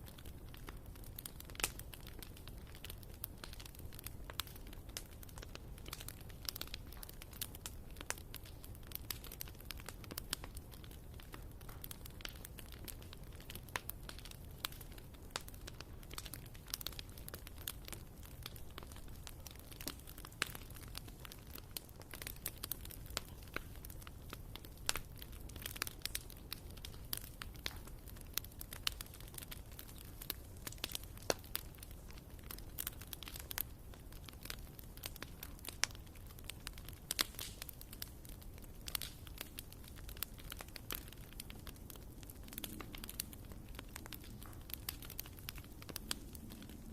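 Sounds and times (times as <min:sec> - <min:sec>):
firewood crackling and popping: 0:00.0 - 0:46.9.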